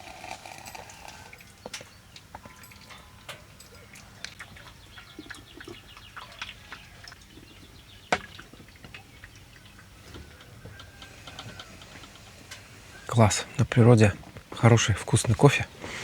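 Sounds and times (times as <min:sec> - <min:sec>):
small knocks: 0:08.1 - 0:12.7.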